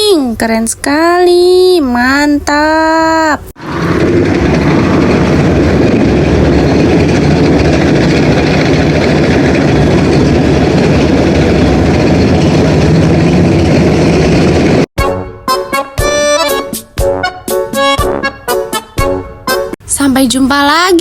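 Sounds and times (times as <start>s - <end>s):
heavy engine idling: 3.6s - 14.9s
music: 15.0s - 19.8s.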